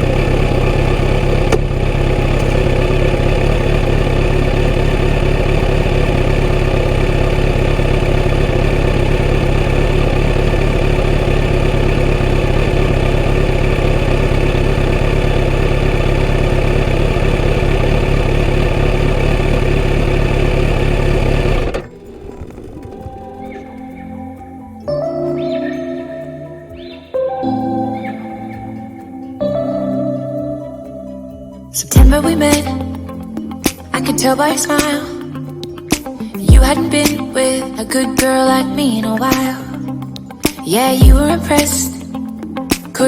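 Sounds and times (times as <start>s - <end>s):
motorcycle engine idling: 0.0s - 24.7s, 32.0s - 33.8s, 35.9s - 38.3s, 39.0s - 42.1s.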